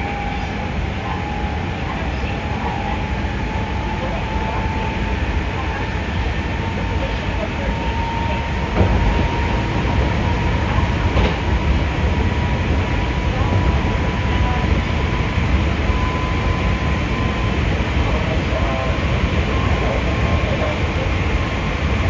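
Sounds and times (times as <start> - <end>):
electric train rumble and whine: 0.0 - 22.0
train wheel knocks: 8.6 - 12.7.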